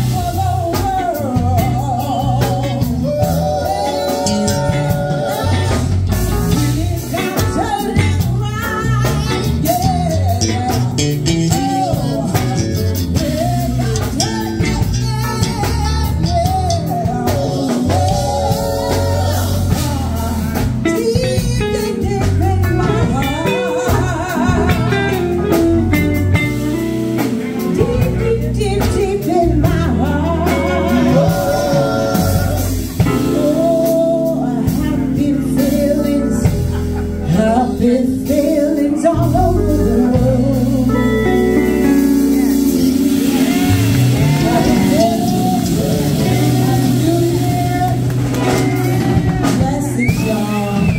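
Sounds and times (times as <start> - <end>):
blues band playing: 0.0 - 50.9.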